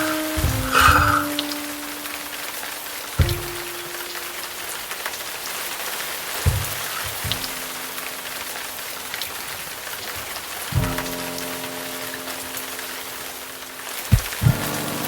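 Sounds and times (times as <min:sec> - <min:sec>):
slow background music: 0:00.0 - 0:05.2, 0:10.7 - 0:15.0
steady rain falling: 0:00.0 - 0:15.0.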